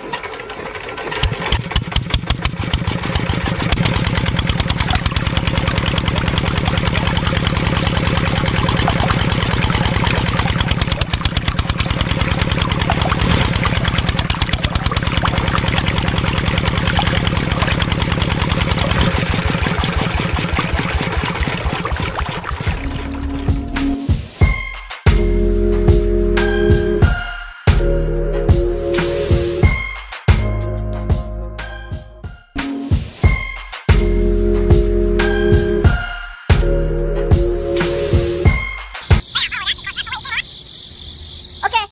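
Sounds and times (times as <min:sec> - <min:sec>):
small engine running: 0:00.0 - 0:21.9.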